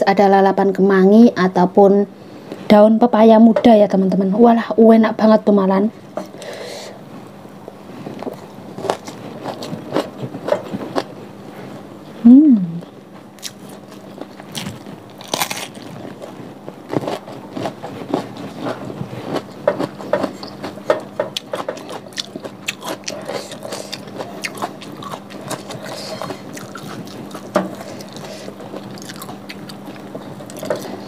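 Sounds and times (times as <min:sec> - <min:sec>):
faint steady hum: 0:00.0 - 0:31.0
person chewing crunchy food: 0:07.8 - 0:11.8, 0:12.8 - 0:31.0.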